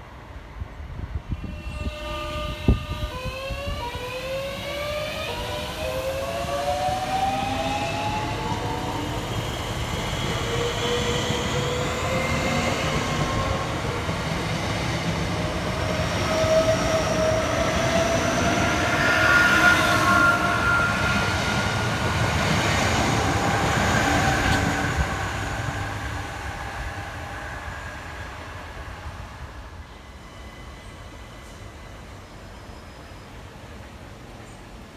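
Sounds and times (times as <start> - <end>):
electric train motors whining: 1.4 - 27.7.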